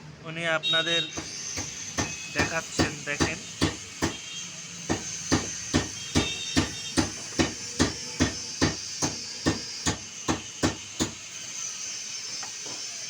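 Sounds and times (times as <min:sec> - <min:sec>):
hammer blows: 0:01.1 - 0:04.3, 0:04.9 - 0:11.2.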